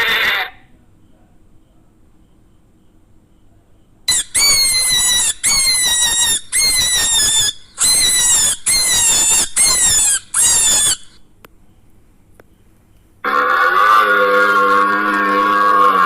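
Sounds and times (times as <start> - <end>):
animal squealing: 0.0 - 0.6, 4.1 - 11.2, 13.2 - 16.0.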